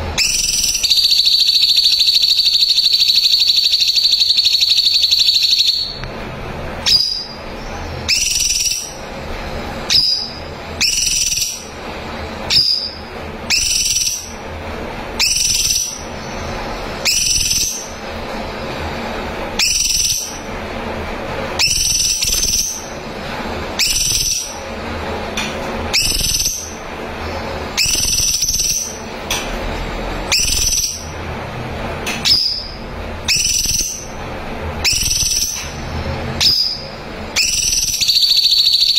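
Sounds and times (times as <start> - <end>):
bird whistling high notes: 0.2 - 6.0, 9.9 - 11.7, 23.8 - 24.6, 25.9 - 26.8, 27.8 - 29.0, 30.3 - 31.1, 32.2 - 34.1, 34.8 - 35.6, 37.4 - 38.9.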